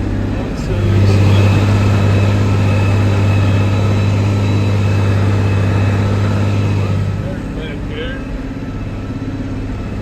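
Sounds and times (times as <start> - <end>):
tractor diesel engine droning: 0.0 - 10.0.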